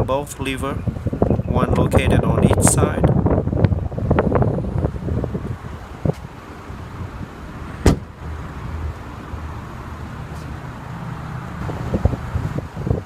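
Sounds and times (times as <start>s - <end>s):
seatback dropping with sharp knock: 7.8s - 8.1s.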